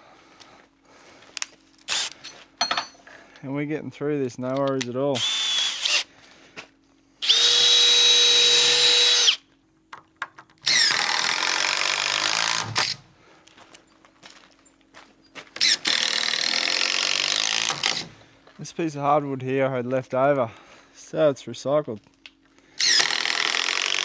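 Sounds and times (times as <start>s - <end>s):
power drill driving screws into wood: 1.9s - 2.4s, 5.2s - 6.1s, 7.2s - 9.4s, 10.6s - 13.0s, 15.6s - 18.2s, 22.8s - 24.0s.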